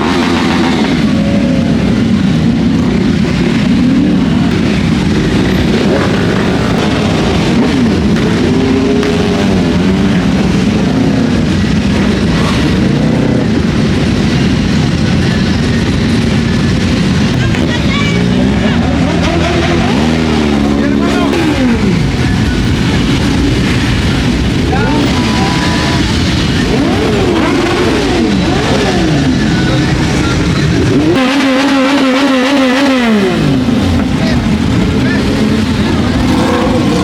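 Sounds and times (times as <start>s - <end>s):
motorcycles riding past: 0.0s - 37.0s.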